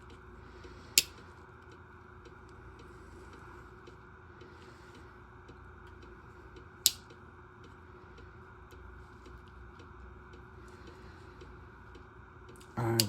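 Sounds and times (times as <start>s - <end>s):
steady background hum: 0.0s - 13.0s
pocketknife clicks: 6.8s - 7.0s.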